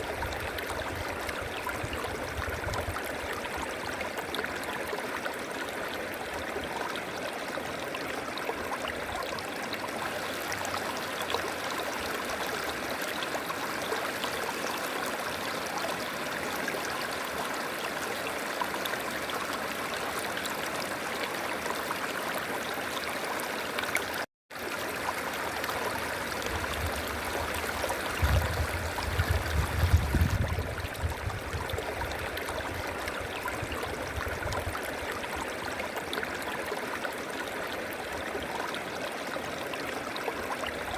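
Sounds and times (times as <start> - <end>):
river flowing: 3.2 - 29.5.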